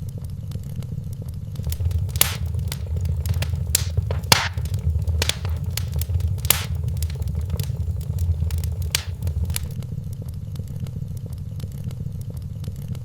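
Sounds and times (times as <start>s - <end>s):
fire low rumble: 1.6s - 9.8s
wood fire popping and snapping: 1.6s - 9.8s.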